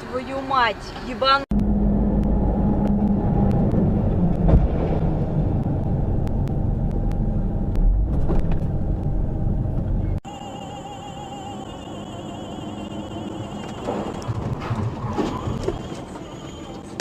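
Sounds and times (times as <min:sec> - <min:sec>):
vehicle engine and road rumble: 0:00.0 - 0:17.0
hum: 0:01.5 - 0:15.0.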